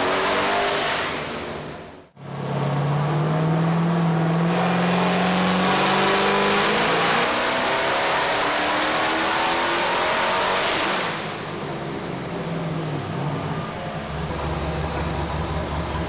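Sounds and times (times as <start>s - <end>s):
engine running under load: 11.7s - 16.0s.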